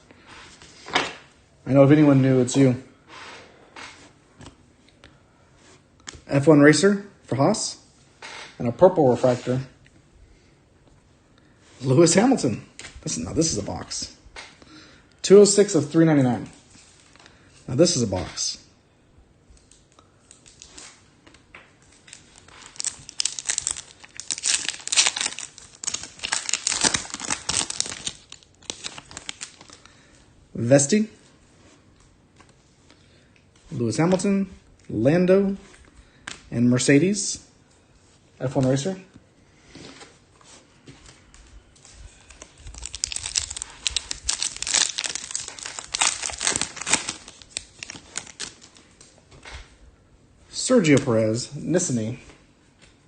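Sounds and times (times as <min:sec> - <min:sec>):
foil wrapper tearing and crinkling: 0:22.1 - 0:29.9, 0:42.2 - 0:48.8.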